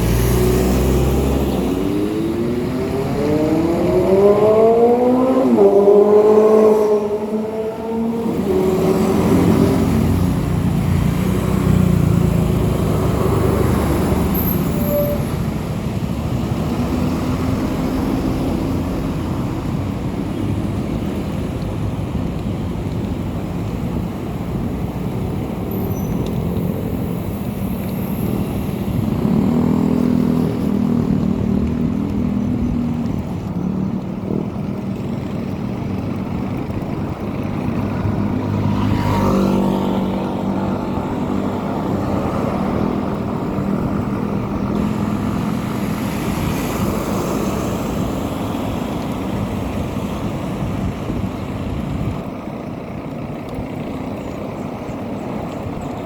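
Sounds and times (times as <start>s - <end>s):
road and wind noise: 0.0s - 56.0s
vehicle engine running: 15.7s - 56.0s.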